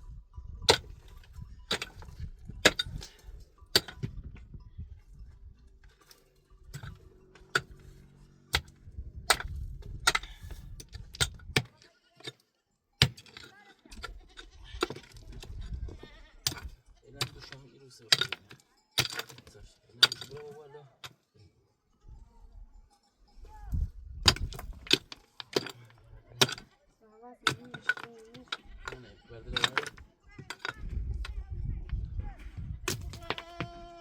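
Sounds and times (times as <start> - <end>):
livestock bleating faintly: 33.2 - 34.0.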